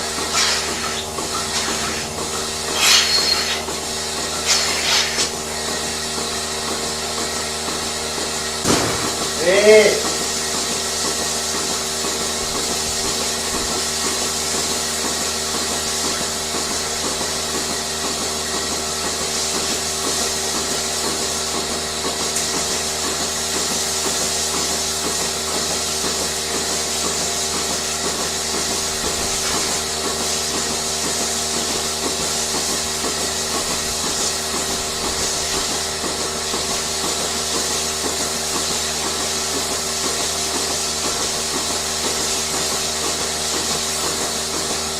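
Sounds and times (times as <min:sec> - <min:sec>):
machinery humming: 0:00.0 - 0:07.5.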